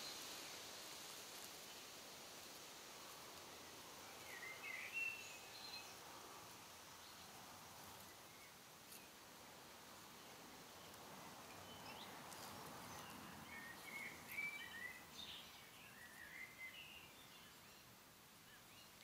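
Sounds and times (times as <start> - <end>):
faint background hiss: 0.0 - 19.0
faint bird chirps: 10.2 - 19.0.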